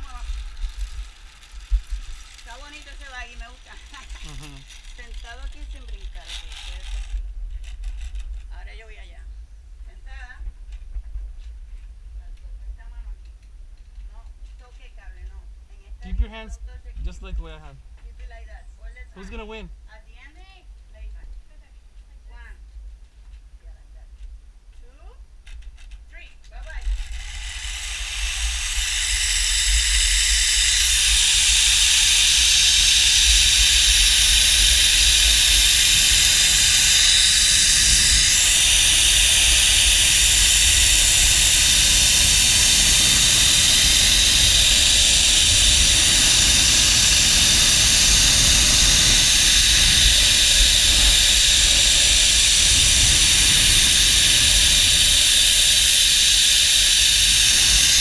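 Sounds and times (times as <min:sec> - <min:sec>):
zipline pulleys hissing on cable: 0:00.0 - 0:09.1, 0:24.9 - 0:58.0
low wind rumble: 0:00.0 - 0:58.0.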